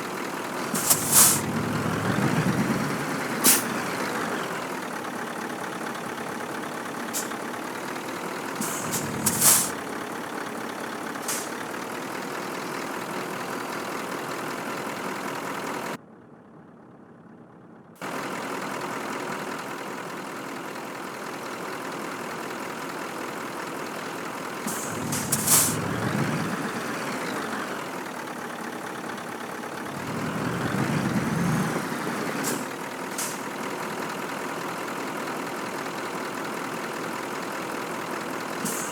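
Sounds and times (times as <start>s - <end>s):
truck diesel engine running: 0.0s - 38.9s
air brake hiss: 0.7s - 1.7s, 3.4s - 3.9s, 7.2s - 7.4s, 8.6s - 9.8s, 11.2s - 11.6s, 24.7s - 26.2s, 32.4s - 33.5s, 38.6s - 38.9s.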